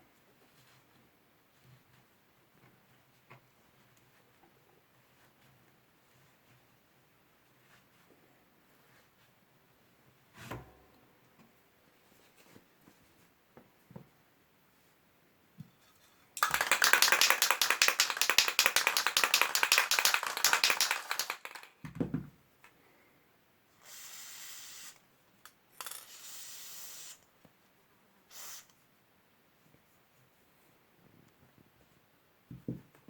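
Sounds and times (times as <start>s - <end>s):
aerosol can ball rattling: 16.4s - 21.9s
aerosol spray hissing: 28.3s - 28.7s.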